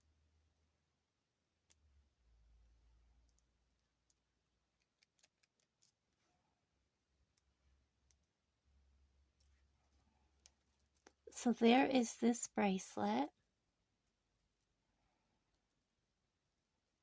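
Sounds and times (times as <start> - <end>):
faint metal jewelry clicks: 1.6 - 6.3, 9.1 - 11.3.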